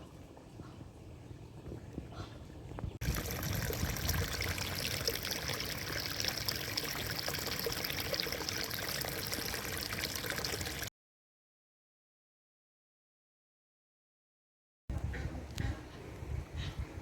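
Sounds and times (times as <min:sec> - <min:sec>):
running water rushing: 0:03.0 - 0:10.9.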